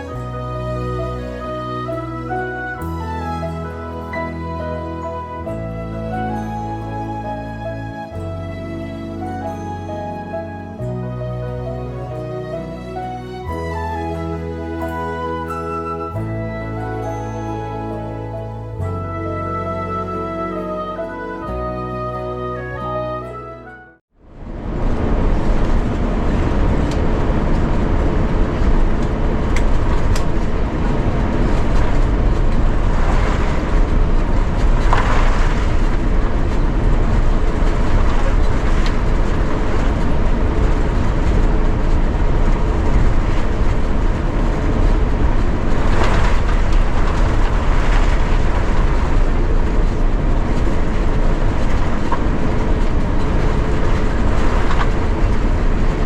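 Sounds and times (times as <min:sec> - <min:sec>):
vehicle interior rumble: 0:24.2 - 0:56.0.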